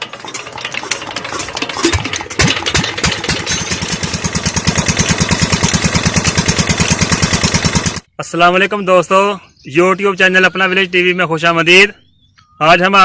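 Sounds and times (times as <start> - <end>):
diesel engine starting: 0.0 - 8.0.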